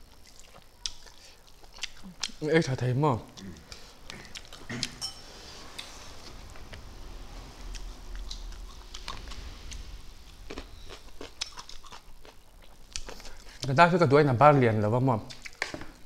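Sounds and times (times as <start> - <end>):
people chewing and lip-smacking: 0.0 - 2.4, 3.3 - 5.0.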